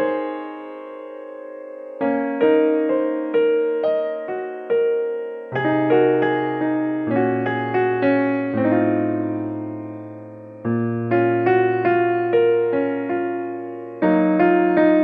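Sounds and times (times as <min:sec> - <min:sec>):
slow calm piano music: 0:00.0 - 0:15.0.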